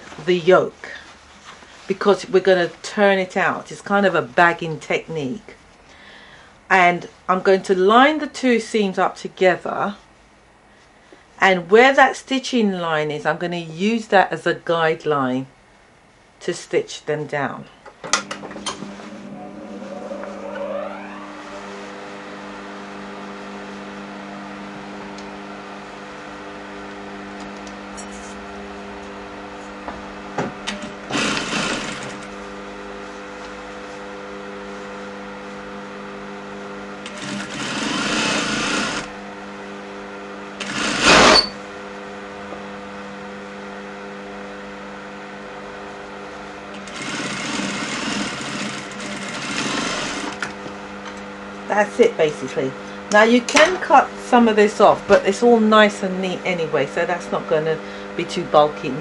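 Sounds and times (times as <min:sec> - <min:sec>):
steady hum: 0:18.1 - 0:59.0
sewing machine stitching: 0:30.7 - 0:32.3, 0:37.0 - 0:39.1, 0:40.6 - 0:41.6, 0:46.8 - 0:50.5.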